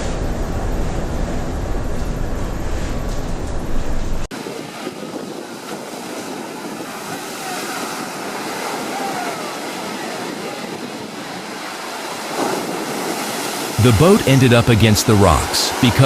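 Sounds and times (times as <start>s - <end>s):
wind blowing across microphone: 0.0s - 13.8s
sea waves washing: 4.3s - 16.0s.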